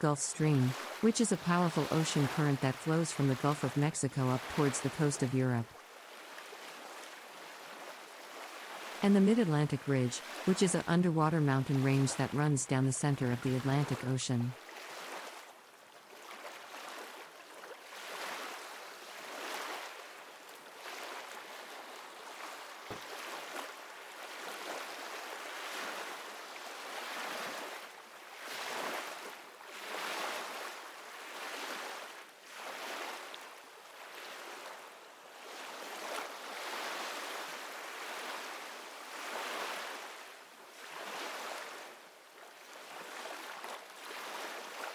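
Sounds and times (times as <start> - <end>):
ocean waves washing: 0.0 - 15.2.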